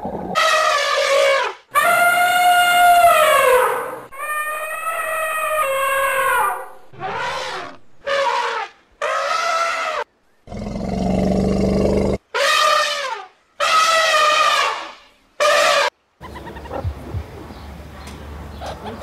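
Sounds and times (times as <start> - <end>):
drawn-out animal cries: 0.4 - 8.4
low rough animal call: 1.8 - 8.3.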